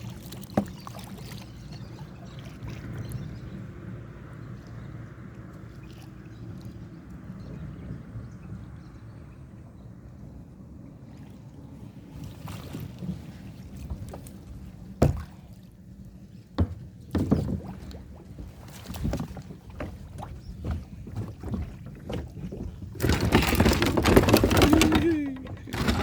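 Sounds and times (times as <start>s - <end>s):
paddle strokes in water: 0.0s - 8.8s, 10.3s - 26.0s
wind rumble on microphone: 1.5s - 15.2s
splashing and rustling: 12.1s - 15.8s, 16.6s - 26.0s
knocks against kayak hull: 15.0s - 15.4s, 16.6s - 17.8s.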